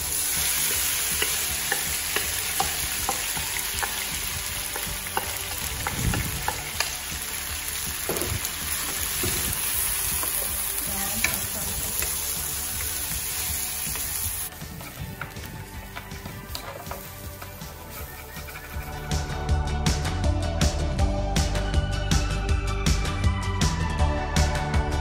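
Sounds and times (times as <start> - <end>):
leaves sizzling in hot oil: 0.0 - 14.7.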